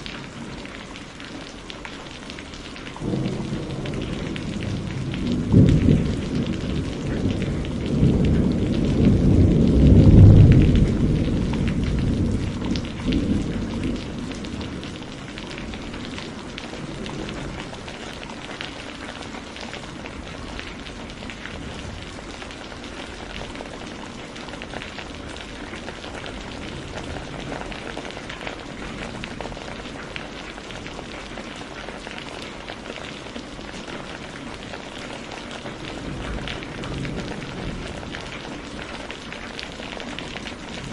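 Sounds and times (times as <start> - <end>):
steady rain: 0.0 - 40.9
thunder rumble: 3.0 - 30.2, 35.7 - 39.4.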